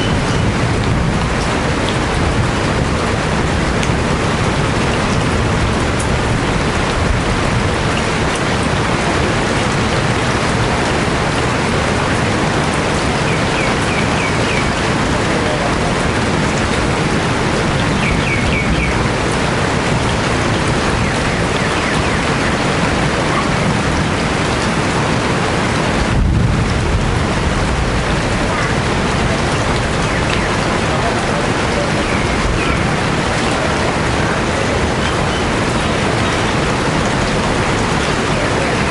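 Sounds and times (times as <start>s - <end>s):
heavy rain falling: 0.0s - 38.9s
high bird chirps: 13.3s - 14.8s, 17.9s - 19.0s.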